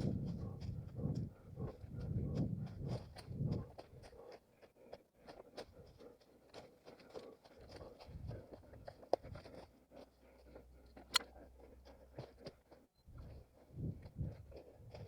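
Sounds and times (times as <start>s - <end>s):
running footsteps on dry leaves: 0.1s - 10.7s.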